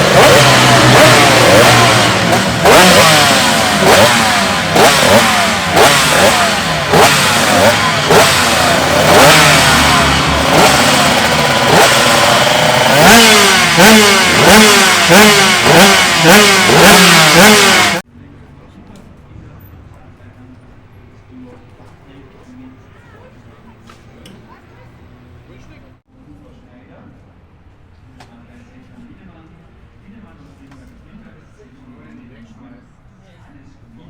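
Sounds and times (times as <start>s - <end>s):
two-stroke motorcycle engine revving: 0.0s - 18.0s.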